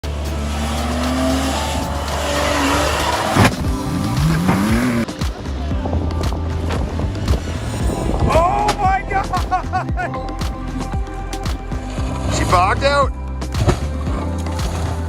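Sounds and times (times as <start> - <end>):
car tyres squealing: 0.0 - 5.1.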